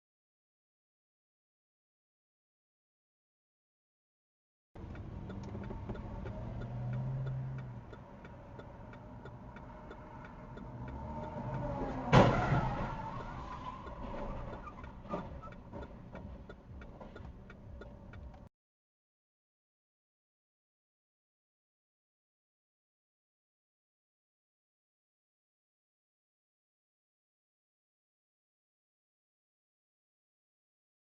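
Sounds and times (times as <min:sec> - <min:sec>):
steady regular ticking: 0:04.8 - 0:12.0, 0:13.0 - 0:18.5
car road and engine noise: 0:04.8 - 0:18.5.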